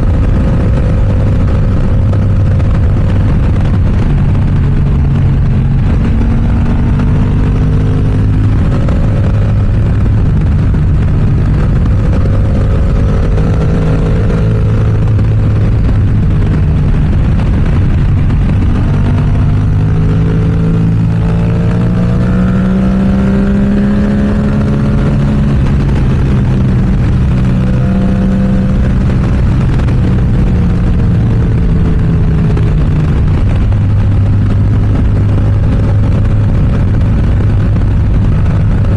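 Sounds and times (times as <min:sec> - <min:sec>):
motorcycle exhaust revving: 0:00.0 - 0:38.9
wind noise: 0:00.0 - 0:38.9.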